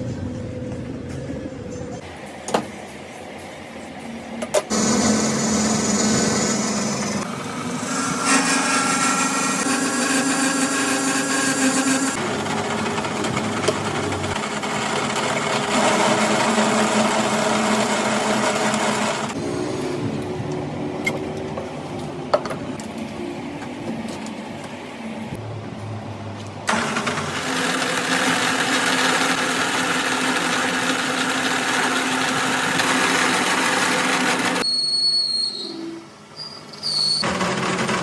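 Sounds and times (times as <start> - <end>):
workshop power tools running: 4.6 - 22.5, 26.7 - 34.6, 37.0 - 38.0.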